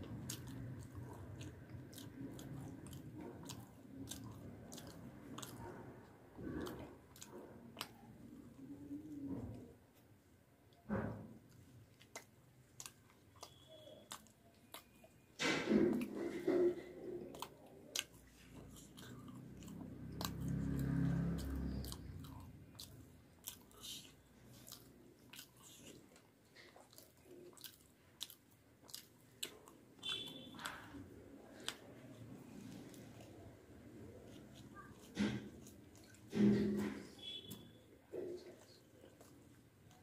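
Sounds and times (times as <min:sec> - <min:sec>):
wet chewing and lip smacking: 0:00.0 - 0:40.0
small mouth clicks: 0:26.6 - 0:32.0.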